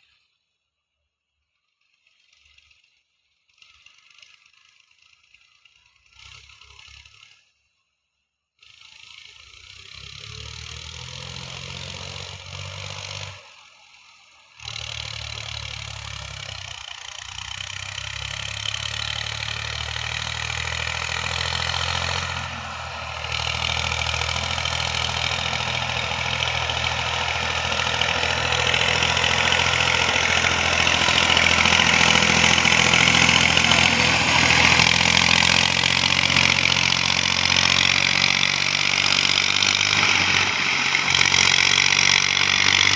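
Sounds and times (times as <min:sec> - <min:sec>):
tractor diesel engine under load: 0:08.8 - 0:42.9.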